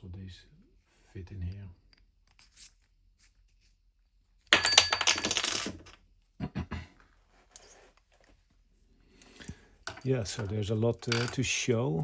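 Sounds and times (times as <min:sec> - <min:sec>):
metal parts clinking: 0:09.2 - 0:11.6.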